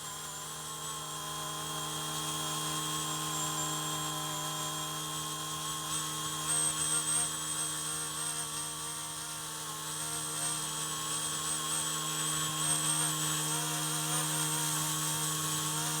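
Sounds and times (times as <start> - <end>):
electric motor whine: 0.0 - 16.0.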